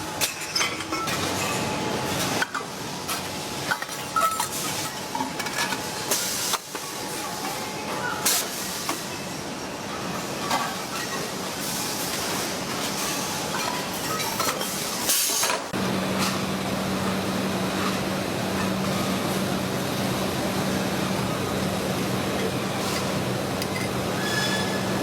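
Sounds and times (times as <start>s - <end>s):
factory machinery hissing: 5.9s - 25.0s.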